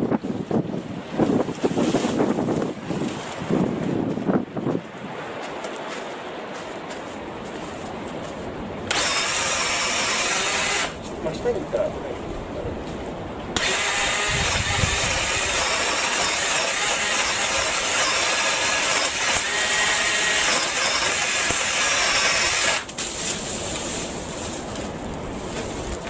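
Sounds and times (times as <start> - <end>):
battery saw cutting branch: 8.8 - 11.1, 13.6 - 24.2.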